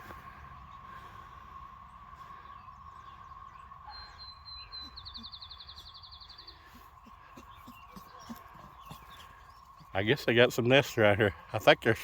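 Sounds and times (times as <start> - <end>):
songbird singing high trill: 2.5 - 10.3.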